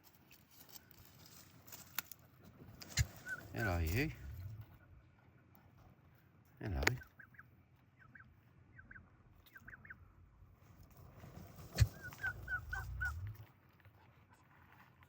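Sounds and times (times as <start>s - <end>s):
young turkeys peeping: 2.7s - 5.4s, 6.7s - 10.3s, 11.6s - 13.5s.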